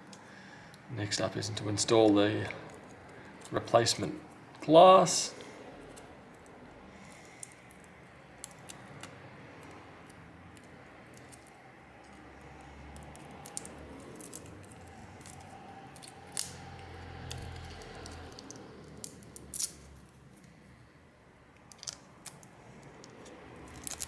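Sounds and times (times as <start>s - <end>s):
small tools clicking: 5.9s - 20.6s, 21.6s - 24.0s.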